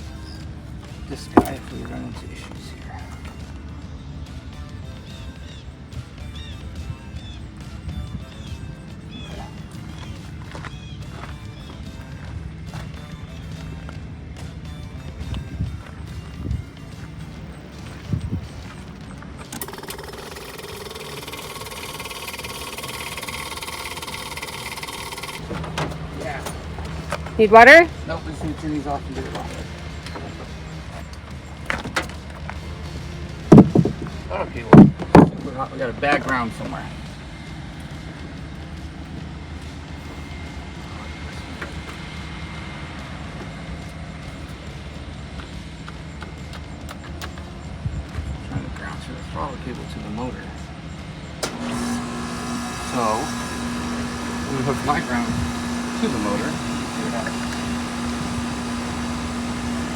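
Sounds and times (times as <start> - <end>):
electric pump motor buzzing: 17.8 - 35.4, 51.0 - 59.9.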